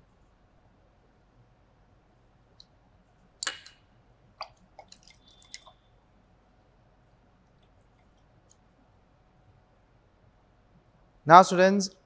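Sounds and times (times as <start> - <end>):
glassware clicking and tapping: 3.4 - 3.8.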